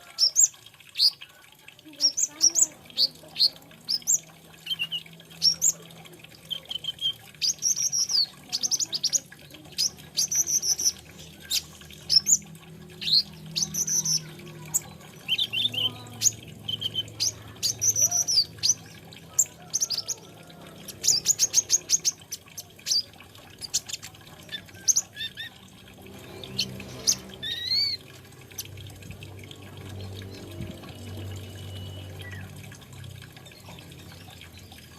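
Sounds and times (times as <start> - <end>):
sunbird singing high chirps: 13.0 - 18.9.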